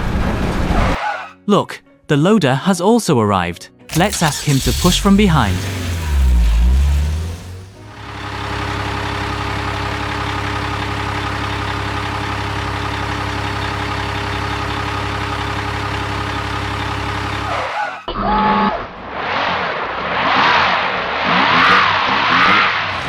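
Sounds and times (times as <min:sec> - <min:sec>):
heavy vehicle engine running: 0:03.9 - 0:17.8.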